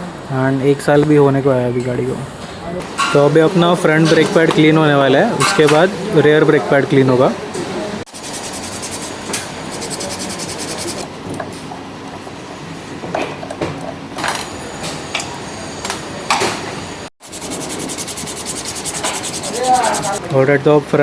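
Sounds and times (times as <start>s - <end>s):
abrasive scrubbing brake pads: 8.1s - 11.0s, 17.2s - 20.2s.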